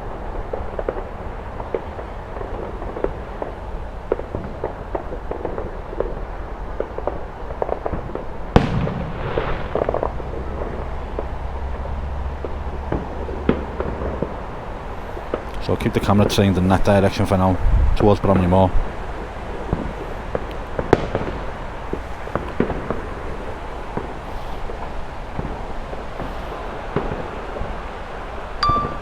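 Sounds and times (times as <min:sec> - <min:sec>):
distant fireworks popping and crackling: 0:00.0 - 0:29.0
loud firework bang: 0:06.8 - 0:11.4, 0:19.7 - 0:27.2.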